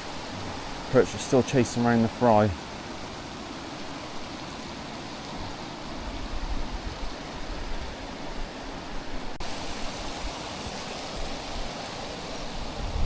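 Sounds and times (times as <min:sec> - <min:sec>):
water rushing at weir: 0:00.0 - 0:13.0
wind gusting on microphone: 0:02.6 - 0:13.0.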